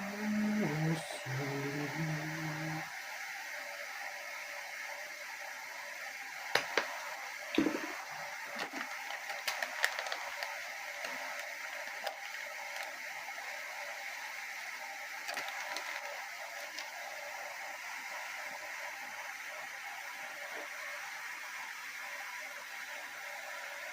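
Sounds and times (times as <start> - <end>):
hot oil sizzling: 0.0 - 23.9
oil popping and crackling: 6.5 - 14.2, 15.1 - 17.2.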